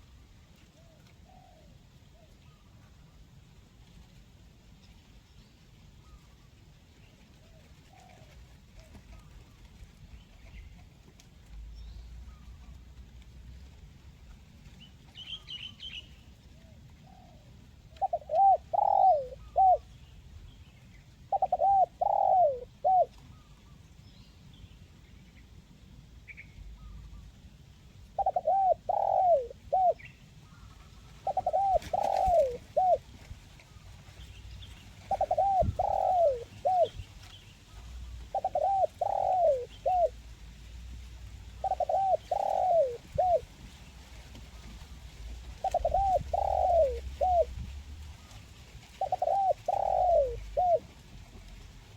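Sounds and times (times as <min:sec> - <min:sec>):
dove cooing: 0:17.0 - 0:20.0, 0:21.2 - 0:23.5, 0:28.1 - 0:40.3, 0:41.4 - 0:43.8, 0:44.4 - 0:51.9
small birds chirping: 0:28.2 - 0:40.2, 0:41.6 - 0:48.4, 0:49.0 - 0:50.8.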